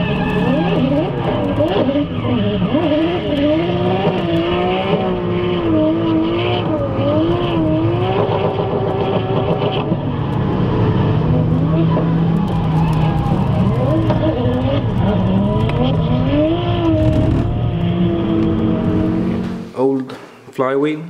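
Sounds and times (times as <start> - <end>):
tyre squeal: 0.0 - 3.2
car engine at high revs: 0.0 - 19.7.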